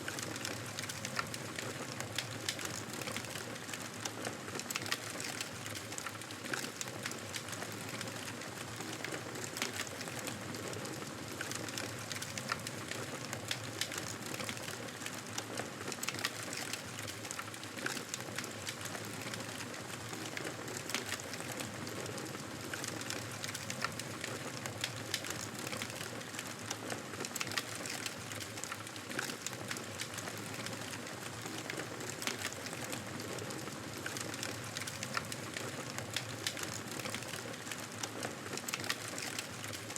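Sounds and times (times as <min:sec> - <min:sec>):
burning wood crackling: 0:22.6 - 0:39.9.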